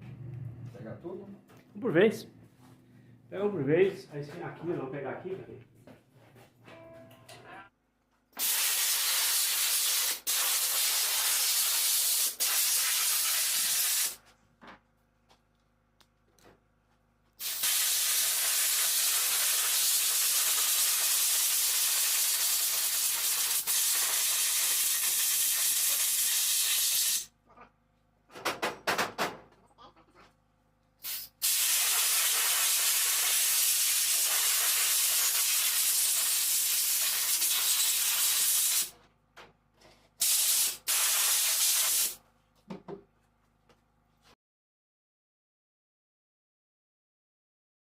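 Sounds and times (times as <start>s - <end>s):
air blow gun hissing: 8.4s - 14.2s, 17.4s - 27.3s, 31.0s - 38.9s, 40.2s - 42.2s.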